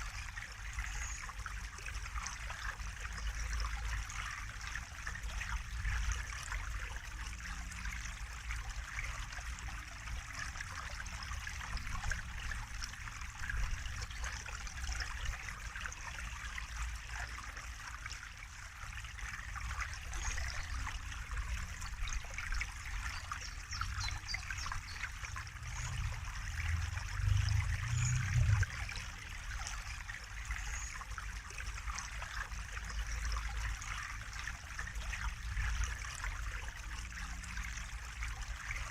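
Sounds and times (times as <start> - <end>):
water trickling and splashing: 0.0 - 38.9
low rumble: 25.3 - 29.1.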